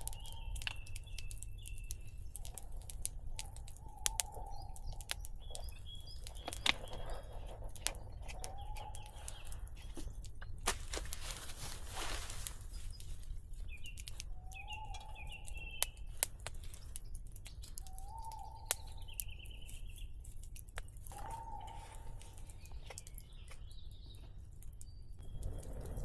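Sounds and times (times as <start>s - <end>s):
low bird call: 0.0s - 10.0s, 14.2s - 16.1s, 17.6s - 19.8s, 21.1s - 24.2s
sharp clicks: 0.0s - 10.4s
higher bird chirping: 0.0s - 10.6s, 12.6s - 20.2s, 20.8s - 26.0s.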